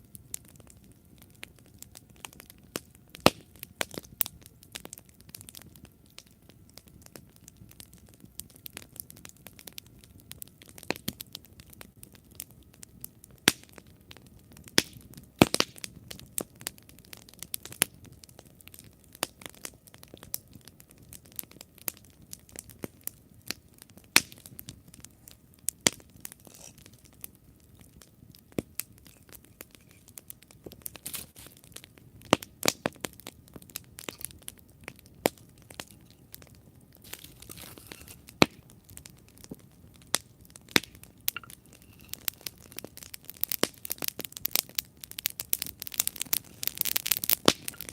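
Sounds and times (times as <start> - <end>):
campfire crackling and popping: 0.0 - 47.9
soft hiss of flames: 0.0 - 47.9.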